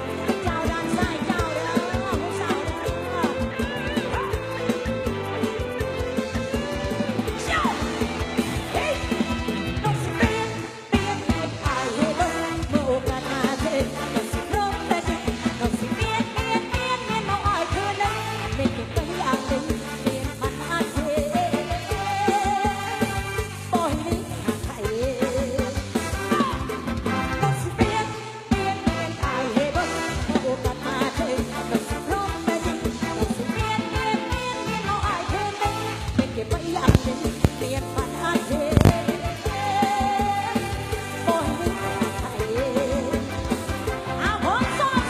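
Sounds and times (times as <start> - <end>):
band backing: 0.0 - 45.0
fast drum beat and bass: 0.0 - 45.0
quick drum beat: 36.6 - 45.0.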